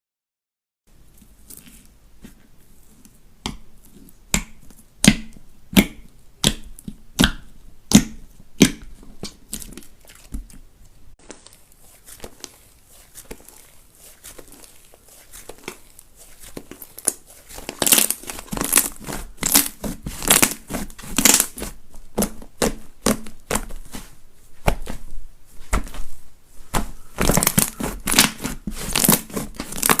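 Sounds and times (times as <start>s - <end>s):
slime squeezed by hand crackling: 11.2s - 24.0s, 26.6s - 30.0s.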